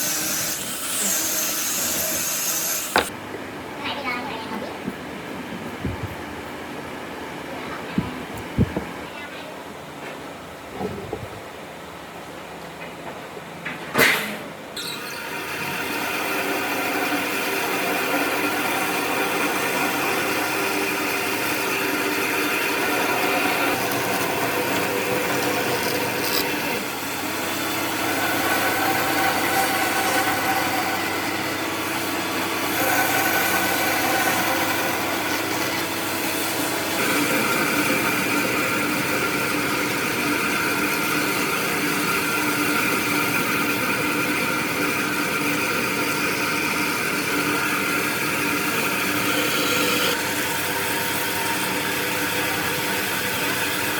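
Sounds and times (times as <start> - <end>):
power tool motor whine: 0.0 - 3.1, 14.9 - 53.9.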